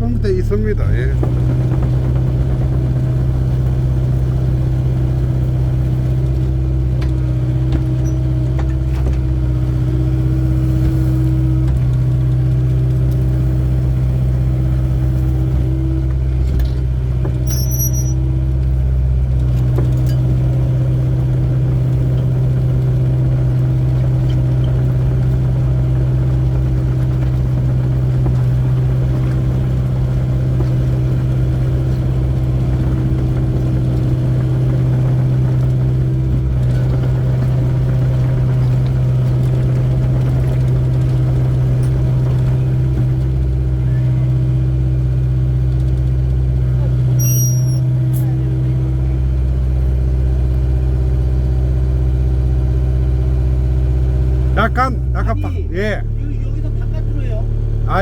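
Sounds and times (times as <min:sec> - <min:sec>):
faint high engine tone: 0:00.0 - 0:01.3, 0:17.5 - 0:18.6, 0:46.7 - 0:50.4
excavator diesel engine running: 0:00.0 - 0:58.0.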